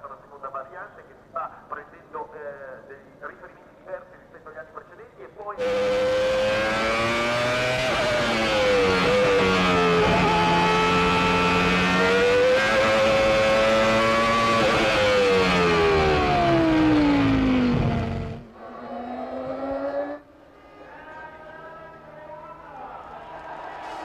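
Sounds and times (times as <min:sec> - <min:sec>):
racing car engine at high revs: 0:05.6 - 0:20.2.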